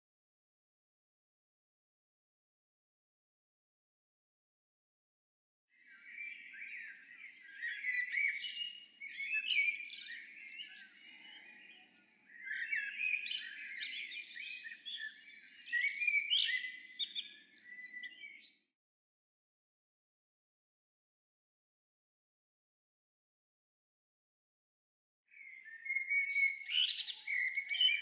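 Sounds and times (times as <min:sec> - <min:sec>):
songbirds chirping and singing: 0:05.8 - 0:18.7, 0:25.3 - 0:28.0.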